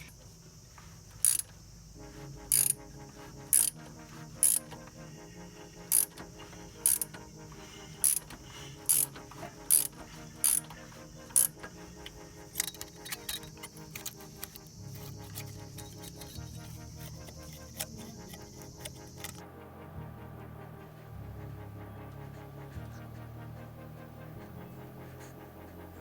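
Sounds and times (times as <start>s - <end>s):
quiet background music: 0.0s - 26.0s
sharp metallic clicks: 1.2s - 1.6s, 2.5s - 2.9s, 3.5s - 4.9s, 5.8s - 7.4s, 8.0s - 19.4s.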